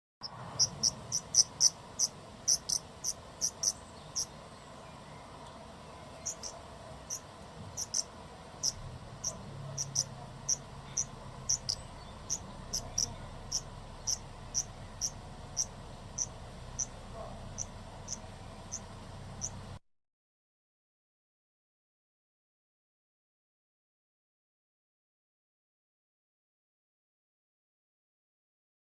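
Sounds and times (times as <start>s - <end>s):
insect chirping: 0.2s - 4.3s, 6.2s - 19.6s
faint steady hiss: 0.2s - 19.8s.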